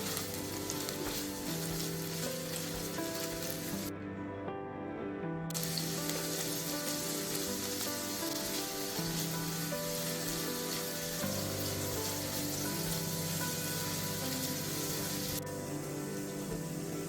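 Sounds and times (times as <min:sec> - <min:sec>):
food sizzling in oil: 0:00.0 - 0:03.9, 0:05.5 - 0:17.0.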